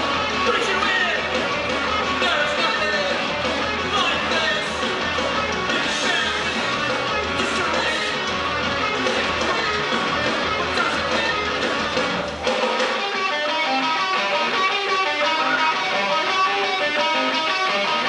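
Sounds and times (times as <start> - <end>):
live rock band playing: 0.0 - 18.0
electric guitar picking short notes: 11.2 - 18.0.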